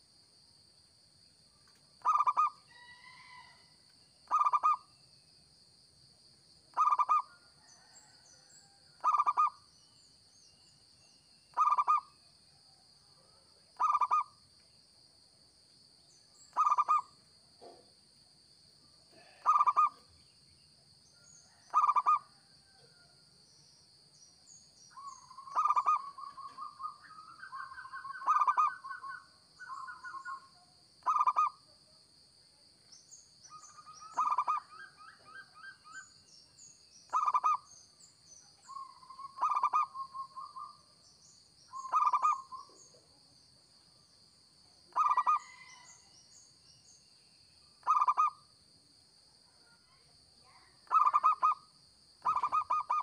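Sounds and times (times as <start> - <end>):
dove cooing: 2.0 - 2.6, 4.3 - 4.8, 6.7 - 7.9, 11.6 - 12.0, 13.8 - 14.3, 19.2 - 20.0, 21.7 - 22.2, 25.3 - 30.4, 34.0 - 36.0, 37.1 - 37.6, 39.3 - 40.6, 41.8 - 42.8, 44.9 - 45.7, 47.8 - 48.3, 50.9 - 51.6, 52.2 - 53.0.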